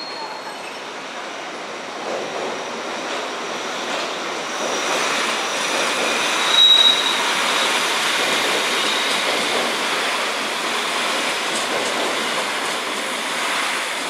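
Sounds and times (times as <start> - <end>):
faint high wheel squeal: 0.0 - 1.1, 5.5 - 9.3
train wheels rushing on rail: 0.0 - 14.0.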